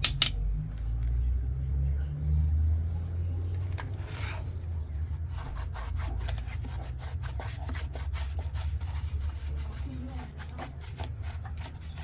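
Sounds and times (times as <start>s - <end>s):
rapid scraping and rubbing: 3.9s - 12.0s.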